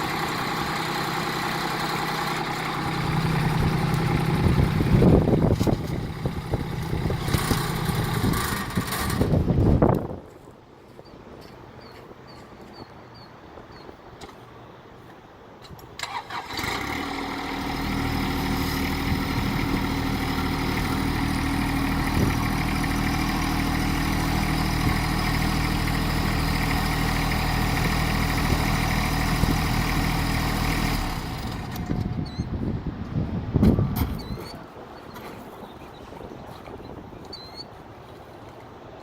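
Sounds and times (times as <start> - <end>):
tractor diesel engine running: 0.0 - 10.0, 16.0 - 34.9.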